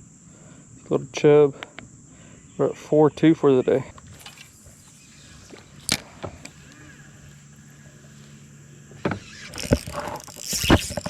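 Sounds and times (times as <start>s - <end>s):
electric boat motor humming: 3.9s - 11.0s
sharp clicks and knocks: 9.0s - 11.0s.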